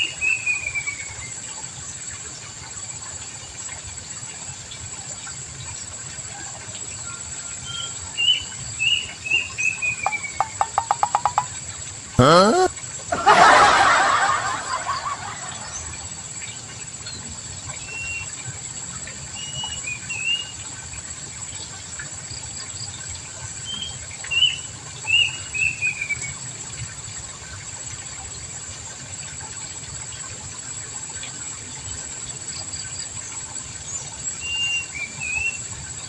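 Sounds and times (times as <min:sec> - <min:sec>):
small bird chirping: 0:07.7 - 0:11.5.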